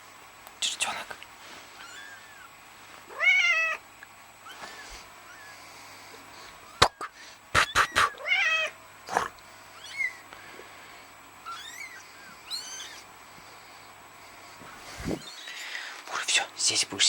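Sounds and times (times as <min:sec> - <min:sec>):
kittens mewing: 0:01.7 - 0:10.5, 0:11.4 - 0:13.1.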